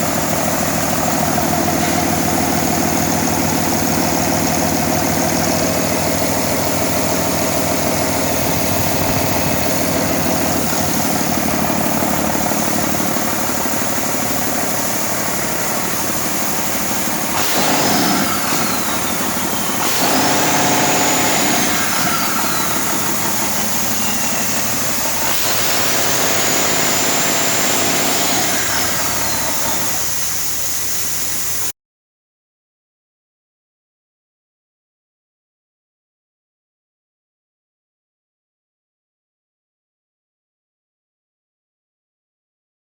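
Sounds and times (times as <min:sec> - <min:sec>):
diesel engine idling and revving: 0:00.0 - 0:31.6
turbo whine: 0:00.0 - 0:31.7.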